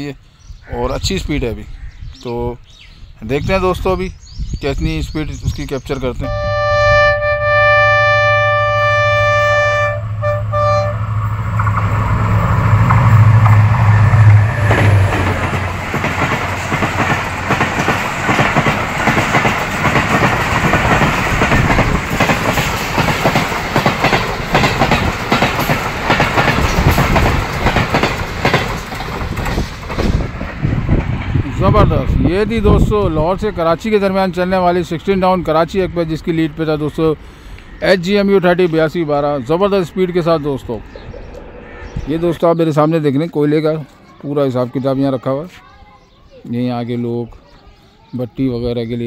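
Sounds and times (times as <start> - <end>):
locomotive engine rumbling: 6.0 - 44.8
locomotive horn: 6.2 - 11.3
wheels clattering over rail joints: 14.6 - 31.4.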